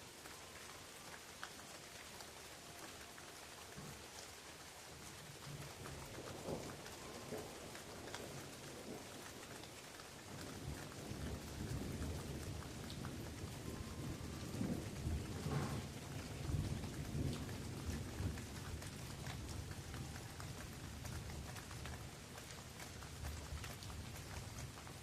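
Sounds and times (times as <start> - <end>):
rain falling on leaves: 0.0 - 25.0
thunder rumbling: 10.4 - 21.8.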